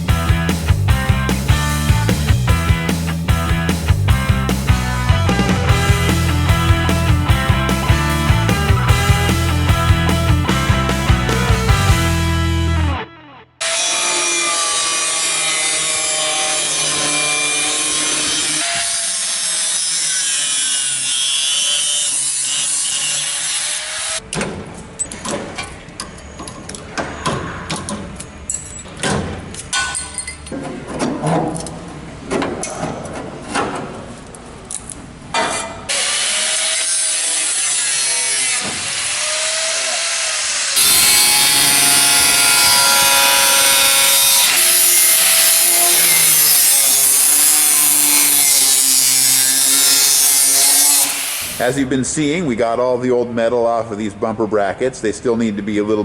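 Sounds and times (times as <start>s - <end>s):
power tool grinding metal: 5.7s - 12.7s, 13.6s - 24.2s, 35.9s - 51.8s
sharp hits and scrapes on metal: 40.8s - 51.7s.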